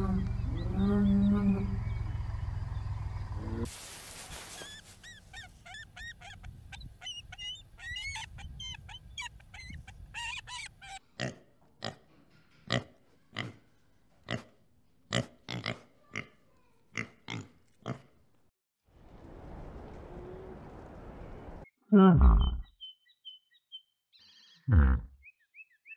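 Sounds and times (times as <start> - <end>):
eagle chittering call: 4.6 - 11.0.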